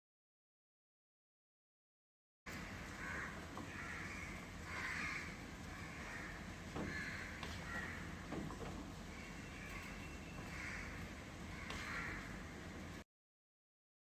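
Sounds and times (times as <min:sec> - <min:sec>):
bird harsh calls: 0:02.6 - 0:13.0.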